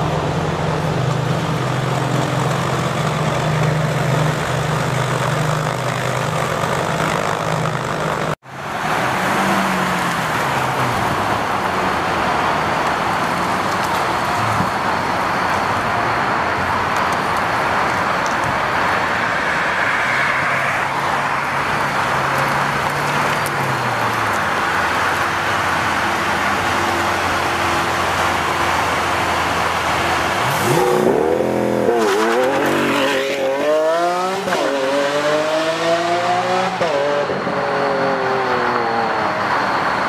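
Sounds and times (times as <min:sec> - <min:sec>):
car pulling away: 0:21.2 - 0:40.0.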